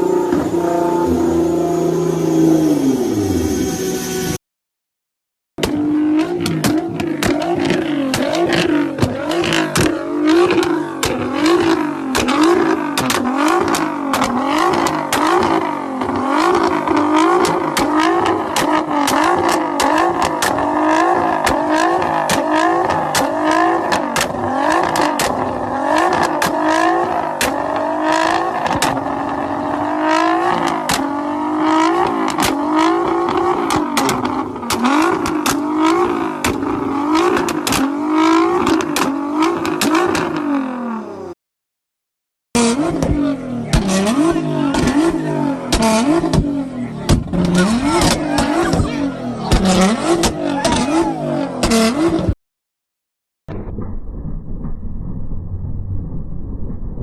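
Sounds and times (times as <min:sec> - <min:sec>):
car engine revving: 0:00.0 - 0:04.3, 0:05.6 - 0:41.4, 0:42.6 - 0:52.4
exhaust pops and crackles: 0:06.4 - 0:29.8, 0:30.5 - 0:31.2, 0:31.9 - 0:40.4, 0:42.9 - 0:50.9.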